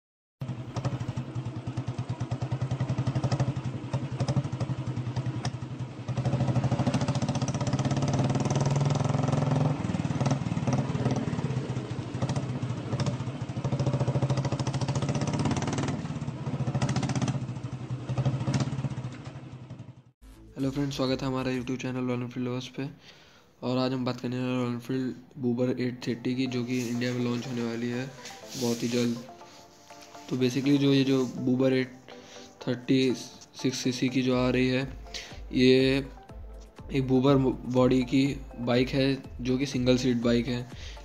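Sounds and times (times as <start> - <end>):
motorcycle engine running: 0.4 - 20.9, 34.1 - 41.0.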